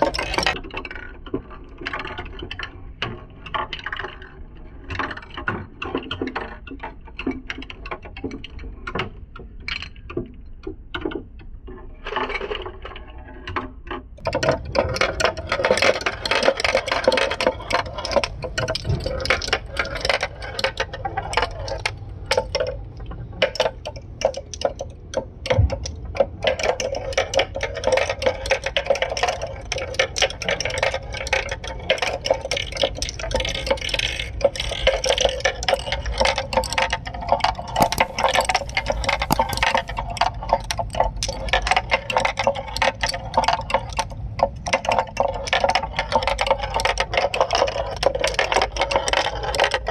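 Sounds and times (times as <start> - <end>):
marbles clattering on track: 37.8 - 40.0.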